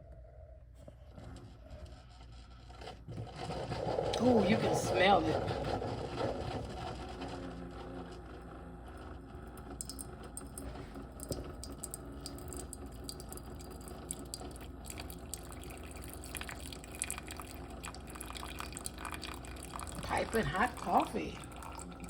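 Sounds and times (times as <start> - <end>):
coffee machine humming: 0.0 - 22.0
coffee dripping into cup: 9.0 - 22.0.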